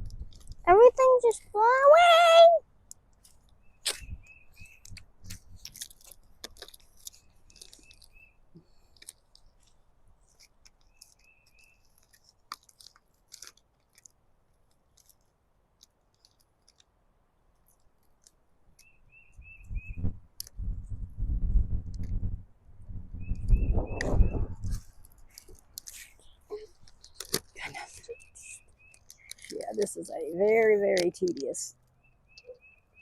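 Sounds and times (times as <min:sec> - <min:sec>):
bird chirping call: 0:03.6 - 0:04.9, 0:18.8 - 0:20.1, 0:23.2 - 0:24.6, 0:26.1 - 0:29.8, 0:32.0 - 0:33.0
crackling of sheet being peeled: 0:08.9 - 0:15.3.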